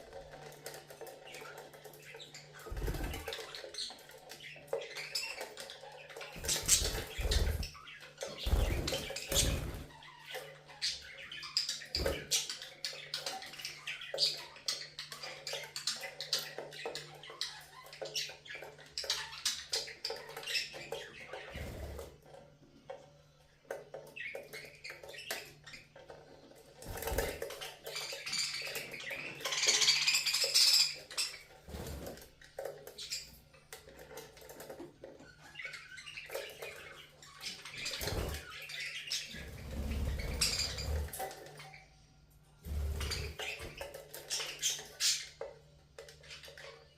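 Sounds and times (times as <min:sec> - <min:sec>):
budgerigars chirping: 0:00.4 - 0:22.0, 0:26.9 - 0:32.1, 0:35.3 - 0:41.9.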